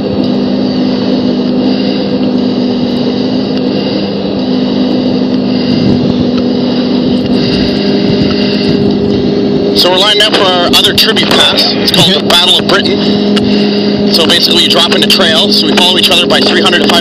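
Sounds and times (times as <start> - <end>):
airflow: 0.0 - 17.0
high engine whine: 0.0 - 17.0
jet engine drone: 0.0 - 17.0.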